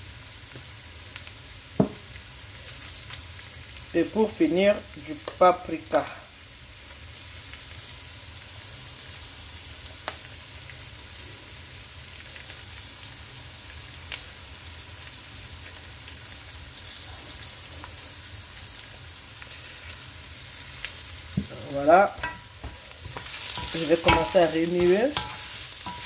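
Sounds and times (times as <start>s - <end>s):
food sizzling in pan: 0.0s - 26.0s.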